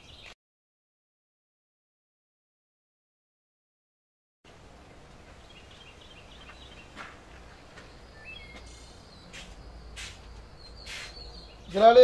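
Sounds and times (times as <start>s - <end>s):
small birds chirping: 0.0s - 0.4s, 4.7s - 12.0s
low background noise: 4.5s - 12.0s.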